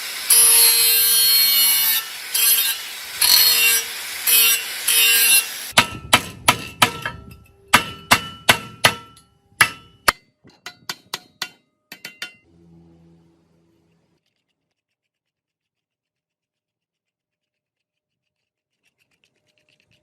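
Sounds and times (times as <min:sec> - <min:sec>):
hand tool rasping: 0:00.3 - 0:12.5
hammer striking metal: 0:05.8 - 0:12.5.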